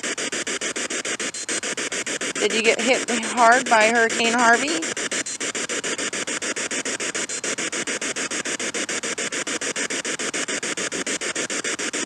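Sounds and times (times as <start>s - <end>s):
pulsing radio static hiss: 0.0s - 12.0s.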